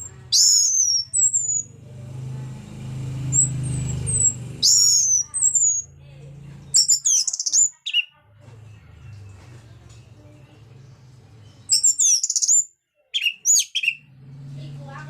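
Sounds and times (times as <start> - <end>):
thrush singing whistled phrases: 0.0 - 1.8, 2.6 - 6.0, 6.7 - 8.1, 11.6 - 14.2.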